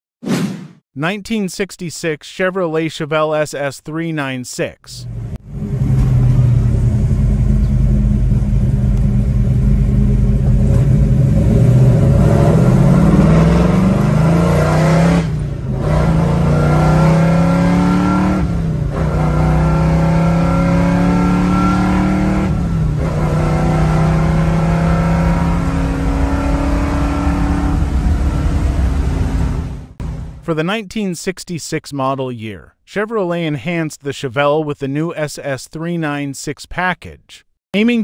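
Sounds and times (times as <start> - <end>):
car engine accelerating hard: 5.0 - 30.4.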